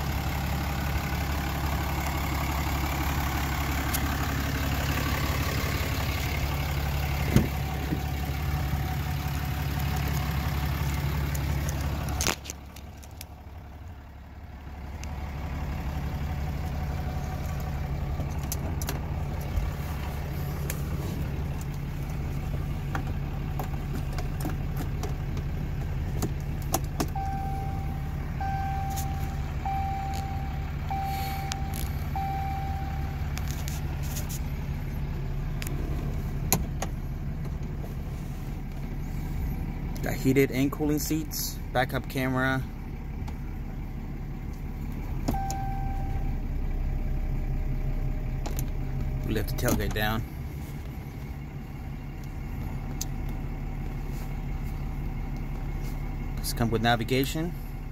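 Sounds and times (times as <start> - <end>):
diesel engine idling: 0.0 - 57.9
vehicle chime beeps: 27.1 - 33.6, 45.3 - 46.4.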